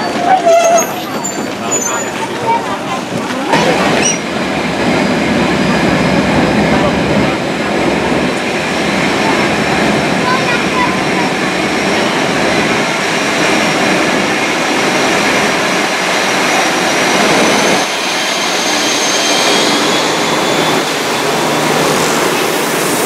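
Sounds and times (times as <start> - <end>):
train passing at speed: 0.0 - 23.0.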